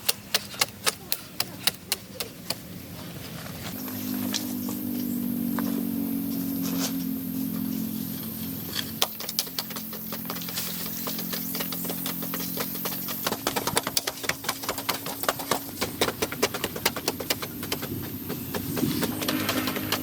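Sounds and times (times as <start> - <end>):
low hum of held tones: 3.7 - 9.0.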